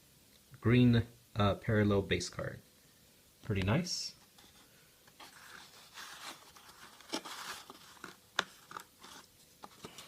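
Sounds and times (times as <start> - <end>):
trading cards shuffled: 5.2 - 10.0.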